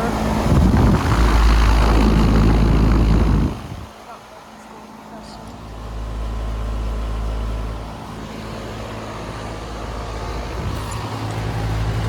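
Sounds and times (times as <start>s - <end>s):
compressor hum: 0.0s - 4.4s
condenser fan rushing: 0.0s - 12.0s
low rumble: 0.4s - 3.9s.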